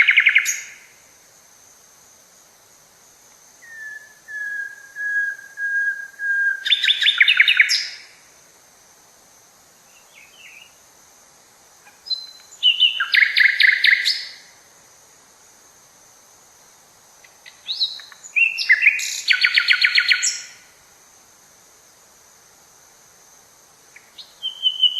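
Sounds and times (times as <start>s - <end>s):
songbird whistling and trilling: 3.6s - 8.0s, 12.1s - 14.4s, 17.6s - 20.5s, 24.1s - 24.9s.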